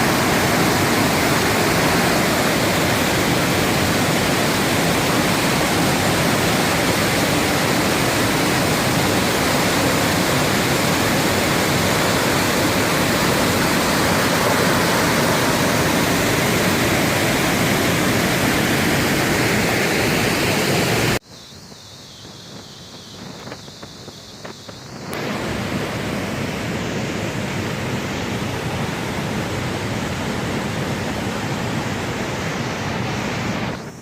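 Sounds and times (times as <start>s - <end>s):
waterfall roaring: 0.0s - 21.2s, 25.1s - 33.8s.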